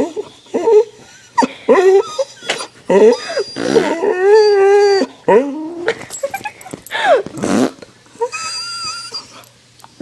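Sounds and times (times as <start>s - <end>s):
dog whining: 0.0s - 9.5s
mouth fart noises: 7.3s - 7.9s.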